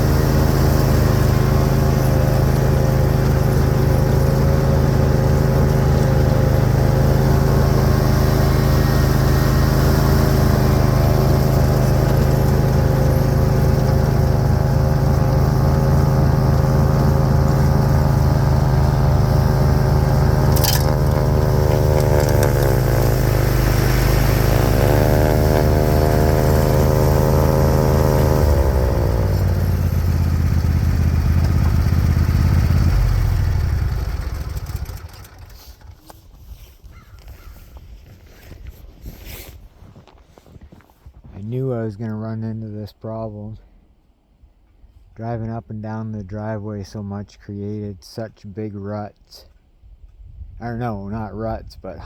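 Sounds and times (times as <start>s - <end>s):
lawn tractor engine running: 0.0s - 36.4s
sharp click: 20.5s - 21.2s.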